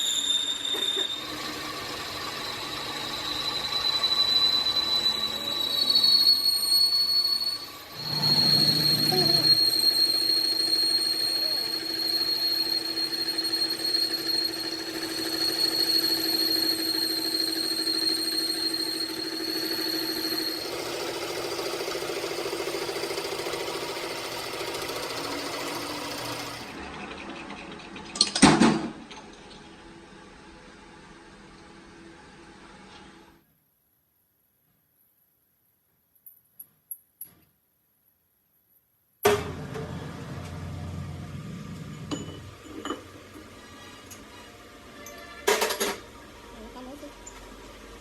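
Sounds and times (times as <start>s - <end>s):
power tool whining: 0.6s - 26.8s.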